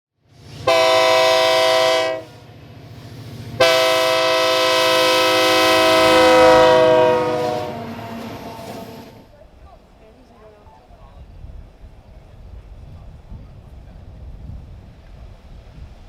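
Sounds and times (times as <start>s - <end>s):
train horn blasts: 0.6s - 2.4s, 3.6s - 9.3s.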